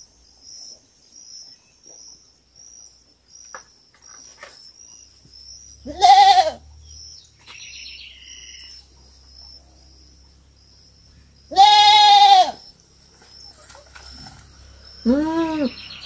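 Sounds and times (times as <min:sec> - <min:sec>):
goat kid bleating: 0:05.8 - 0:06.6, 0:11.5 - 0:12.6, 0:15.0 - 0:15.7.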